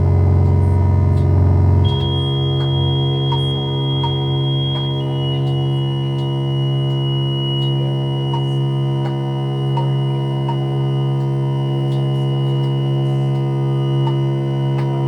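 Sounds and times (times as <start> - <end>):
synthesizer drone: 0.0 - 15.0
high thin tone: 1.8 - 9.1.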